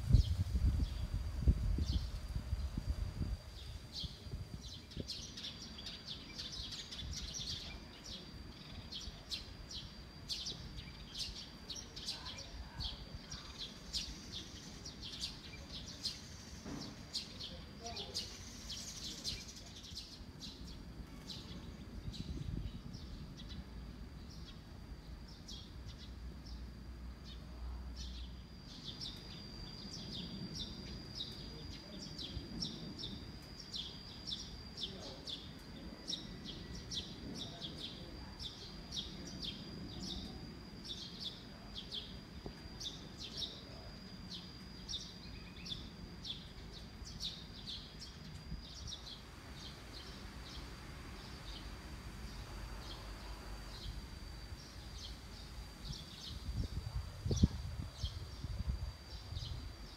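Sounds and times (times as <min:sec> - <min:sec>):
faint low rumble: 0:00.0 - 0:17.9
small birds chirping: 0:00.0 - 0:59.9
steady high-pitched tone: 0:00.0 - 0:59.9.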